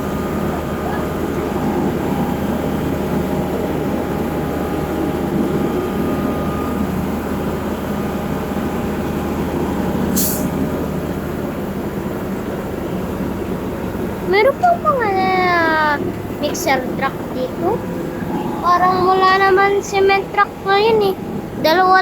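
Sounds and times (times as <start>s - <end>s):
diesel truck engine rumbling: 0.0s - 22.0s
short sharp hiss: 10.1s - 10.6s.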